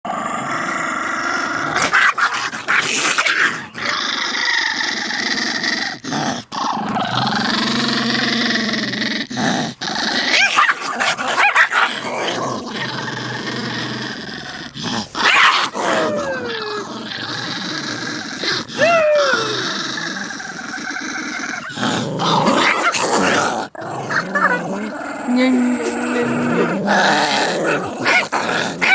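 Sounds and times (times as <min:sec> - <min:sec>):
dogs growling and snarling: 0:00.0 - 0:28.9
dog yelping: 0:27.7 - 0:28.9.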